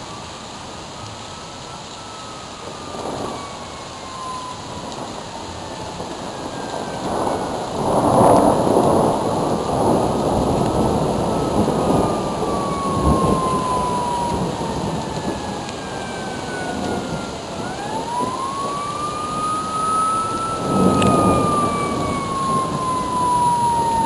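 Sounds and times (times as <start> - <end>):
emergency siren wailing: 0.0 - 24.0
rain: 0.0 - 24.0
thunder: 2.6 - 24.0.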